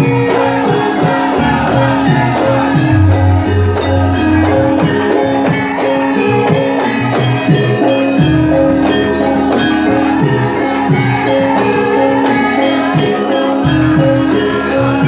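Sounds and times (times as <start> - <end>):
drum beat: 0.0 - 11.7
band playing instrumental music: 0.0 - 15.0.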